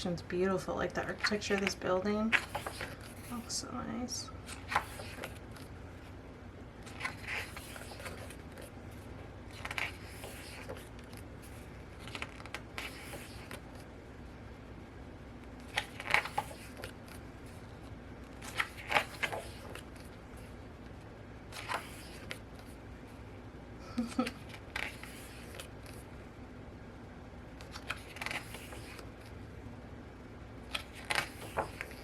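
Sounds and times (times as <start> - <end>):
book pages turning: 1.0 - 6.2, 6.8 - 13.9, 15.4 - 22.8, 24.3 - 26.1, 27.5 - 29.4, 30.6 - 32.0.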